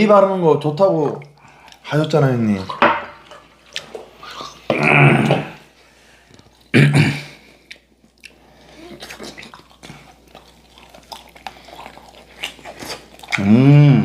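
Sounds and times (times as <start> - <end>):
people chewing: 1.2 - 2.2, 3.2 - 14.0
short vocal sound: 4.7 - 5.6, 13.4 - 14.0.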